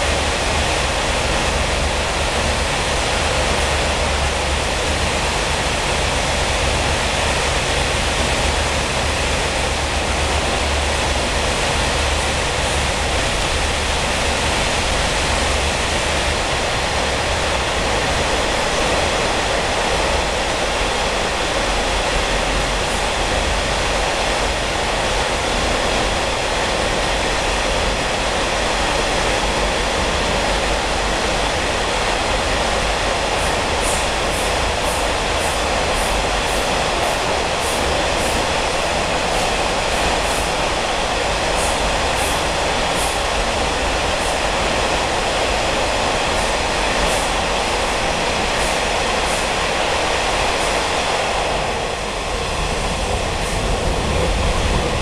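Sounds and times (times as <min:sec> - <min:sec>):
train coach rushing roar: 0:00.0 - 0:55.0.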